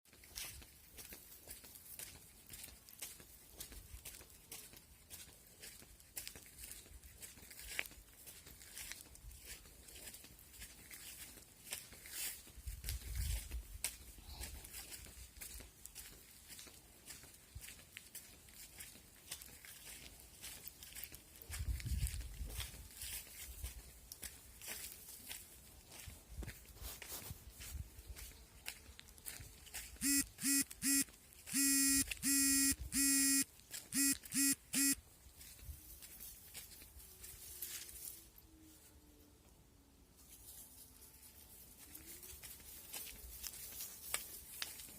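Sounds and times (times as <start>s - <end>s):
pattering and rustling on ground: 0.1s - 30.0s, 35.2s - 38.4s, 40.1s - 44.9s
reedy squeaker honking: 30.0s - 33.4s, 34.0s - 35.0s.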